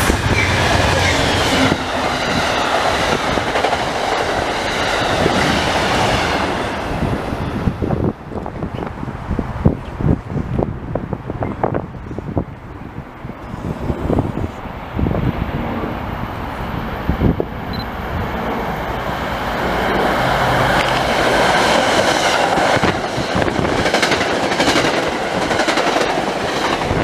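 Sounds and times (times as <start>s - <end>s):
train clickety-clack: 0.0s - 10.7s, 19.8s - 27.0s
rumble of steel wheels on rail: 0.0s - 27.0s.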